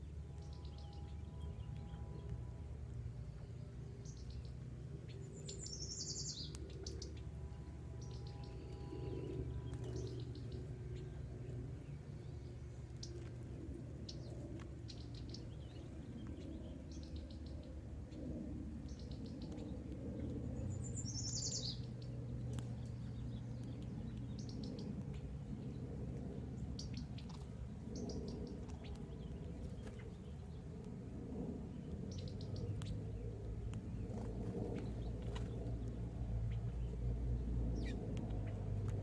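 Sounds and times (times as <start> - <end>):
steady low rumble: 0.0 - 39.0
birds chirping trilled calls: 3.8 - 11.2, 20.6 - 22.2, 31.8 - 38.9.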